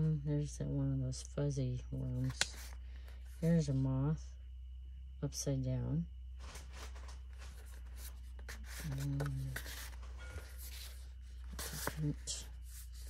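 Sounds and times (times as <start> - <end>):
steady low hum: 0.0 - 13.0
paper sheets rustling: 6.4 - 13.0.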